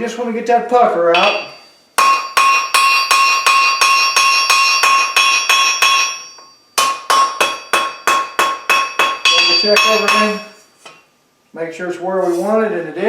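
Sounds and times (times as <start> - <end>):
hammer striking steel on anvil: 1.2 - 11.0.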